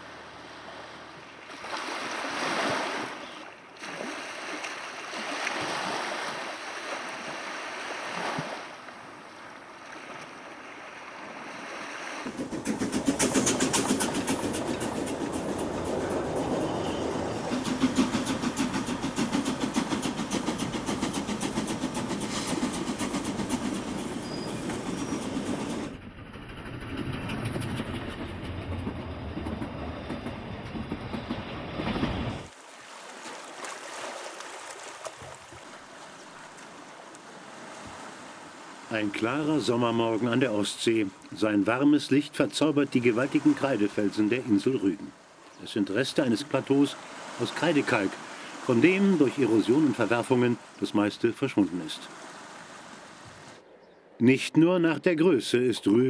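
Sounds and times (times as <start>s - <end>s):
rushing noise of train: 12.3s - 32.5s
train wheels clattering on track: 12.3s - 32.5s.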